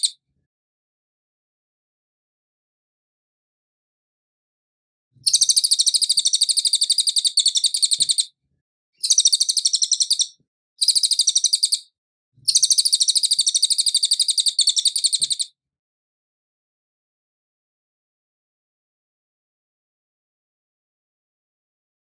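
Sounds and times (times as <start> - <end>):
songbird trilling: 5.3 - 8.3, 9.0 - 11.8, 12.5 - 15.5.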